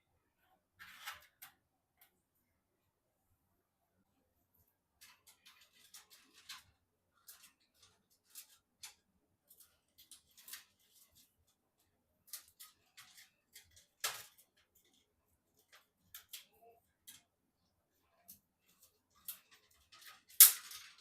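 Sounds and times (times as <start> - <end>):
computer parts clicking and rustling: 5.0 - 17.4, 18.2 - 21.0.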